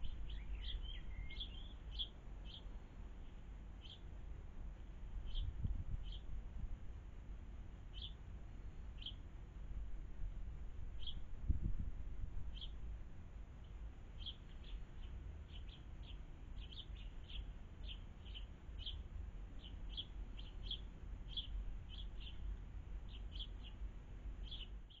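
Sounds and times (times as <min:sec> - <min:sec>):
small bird chirping: 0:00.0 - 0:04.1, 0:05.2 - 0:06.3, 0:07.9 - 0:08.2, 0:09.0 - 0:09.2, 0:11.0 - 0:11.2, 0:12.5 - 0:12.8, 0:13.6 - 0:23.8, 0:24.4 - 0:25.0
steady low rumble: 0:00.0 - 0:25.0.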